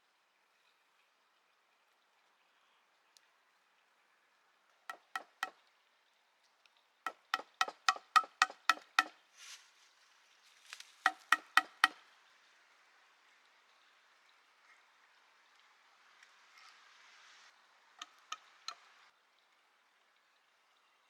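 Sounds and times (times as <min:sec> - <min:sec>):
hollow wooden knocks: 0:04.9 - 0:05.5, 0:07.1 - 0:09.1, 0:11.1 - 0:12.0.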